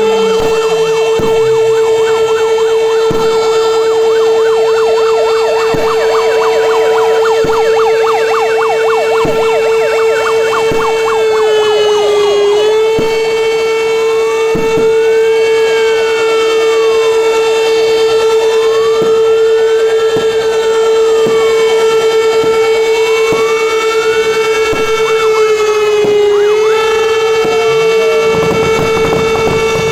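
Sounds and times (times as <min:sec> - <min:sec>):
fire engine sirens: 0:00.0 - 0:29.9
horn-like tone: 0:26.4 - 0:29.9.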